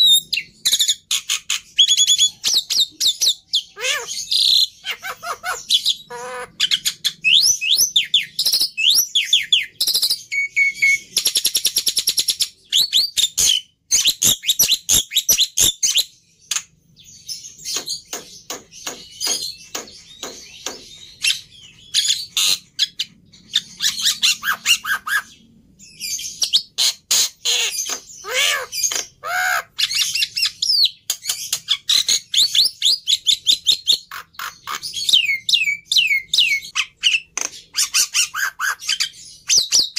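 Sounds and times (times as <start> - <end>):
bird singing whistles and trills: 1.8 - 16.2, 17.0 - 26.8.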